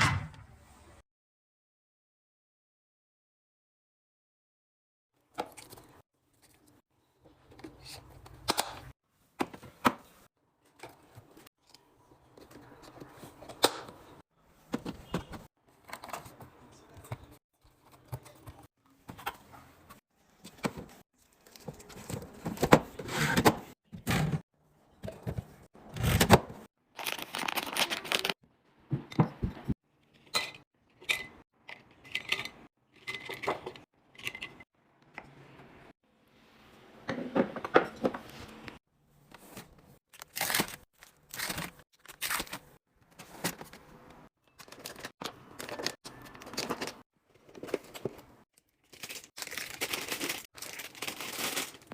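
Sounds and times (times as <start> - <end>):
packaging rustling and tearing: 27.0 - 28.4, 40.1 - 42.7, 48.7 - 51.9.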